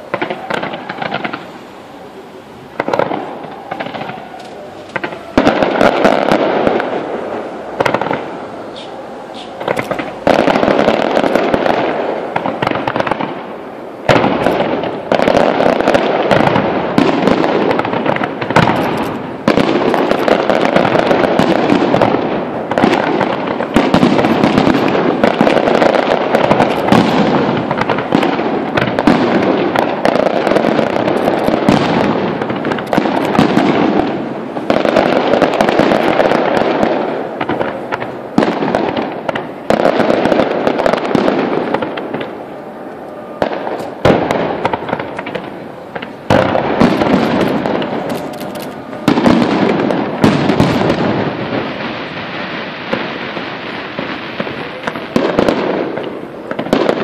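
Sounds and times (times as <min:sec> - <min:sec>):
fireworks bursts and crackling: 0:00.0 - 0:57.0
loud firework bang: 0:14.1 - 0:42.4, 0:43.4 - 0:57.0.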